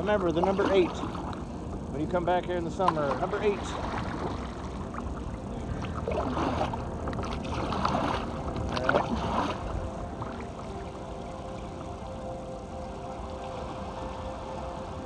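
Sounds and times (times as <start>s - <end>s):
paddle splashing in water: 0.0s - 11.0s
moving water: 0.0s - 15.0s
wind: 0.0s - 15.0s.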